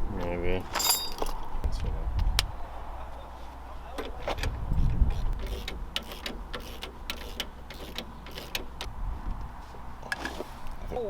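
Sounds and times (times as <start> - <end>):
metal tools clinking: 0.6 - 1.6.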